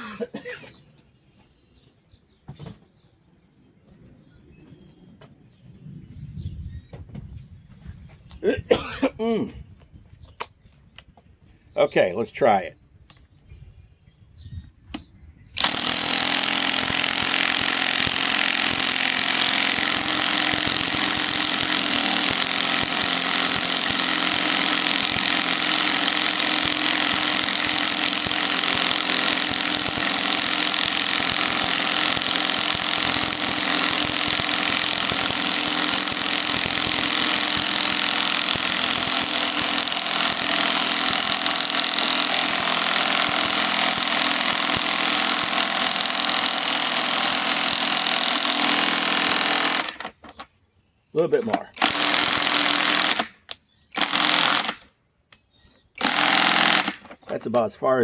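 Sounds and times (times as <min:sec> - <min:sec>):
impact wrench hammering: 0:15.6 - 0:50.1.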